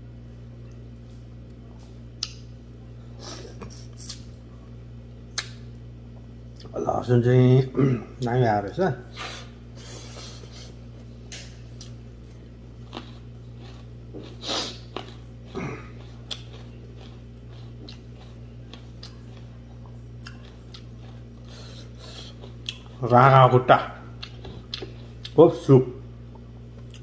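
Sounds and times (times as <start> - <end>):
steady low hum: 0.0 - 27.0
person chewing food: 10.1 - 23.1, 24.1 - 25.4, 26.3 - 27.0.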